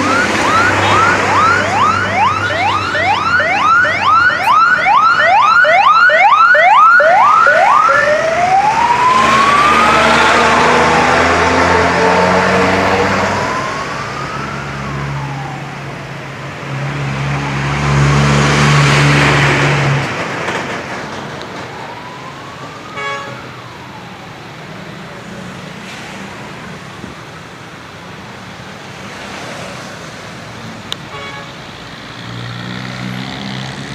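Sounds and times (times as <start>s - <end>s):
wailing tone rising and falling: 0.0s - 16.0s
trucks passing on road: 0.0s - 33.9s.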